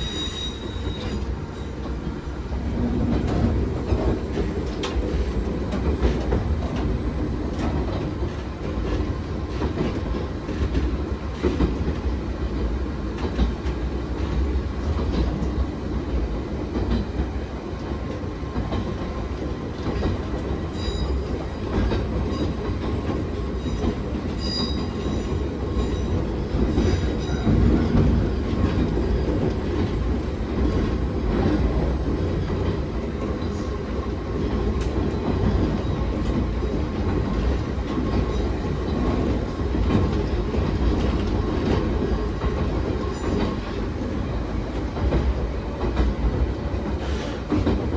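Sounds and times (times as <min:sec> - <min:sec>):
high-pitched wheel squeal: 0:00.0 - 0:01.7
electric train rumble: 0:00.0 - 0:47.9
rail joint clicks: 0:00.0 - 0:47.9.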